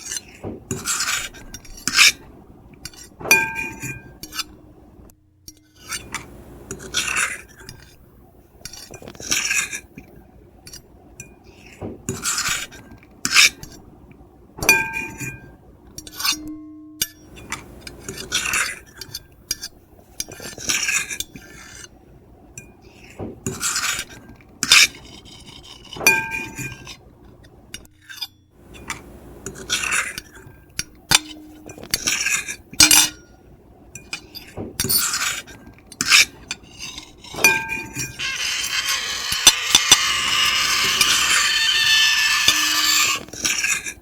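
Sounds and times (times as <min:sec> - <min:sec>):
fork and knife scraping a plate: 0:00.0 - 0:02.2, 0:11.6 - 0:13.7, 0:23.0 - 0:27.0, 0:31.1 - 0:33.3, 0:34.1 - 0:44.0
plate ringing from knocks: 0:32.8 - 0:33.2.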